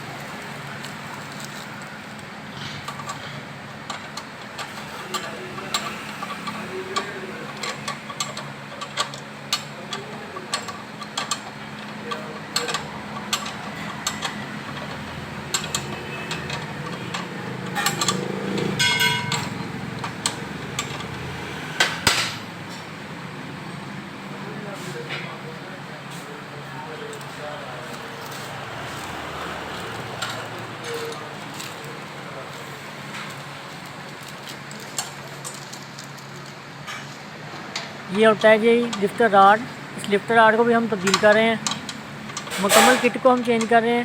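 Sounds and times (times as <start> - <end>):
metal tools clinking and knocking: 12.1 - 21.2, 41.0 - 43.8.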